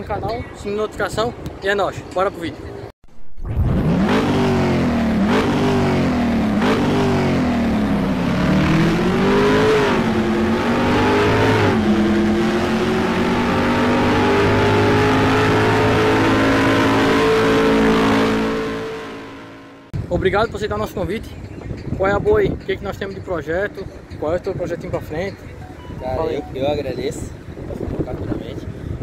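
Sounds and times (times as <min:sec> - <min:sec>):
car engine accelerating: 0:03.5 - 0:19.9.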